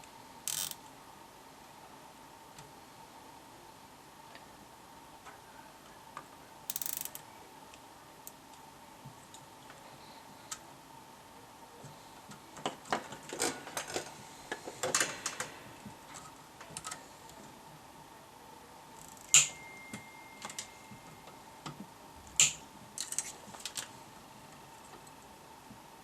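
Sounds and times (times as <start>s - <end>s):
faint high tone: 19.3s - 21.4s.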